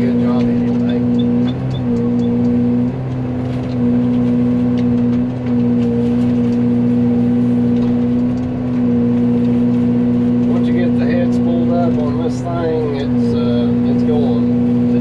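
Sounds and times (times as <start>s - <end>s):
excavator mulching head whining: 0.0s - 15.0s.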